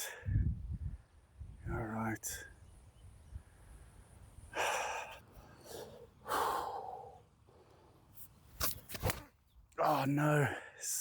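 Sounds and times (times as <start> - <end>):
man breathing: 3.4 - 8.1.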